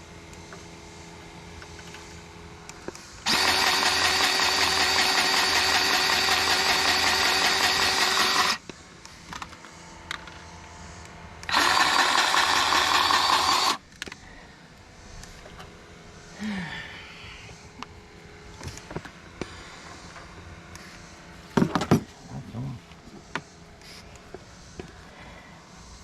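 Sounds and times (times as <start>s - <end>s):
grease gun motor running: 3.2s - 8.6s, 11.4s - 13.8s.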